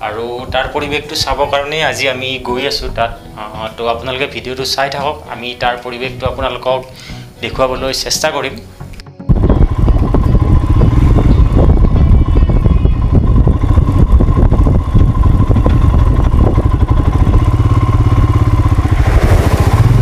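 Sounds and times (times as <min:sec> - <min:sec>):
motorcycle engine running: 0:09.3 - 0:20.0.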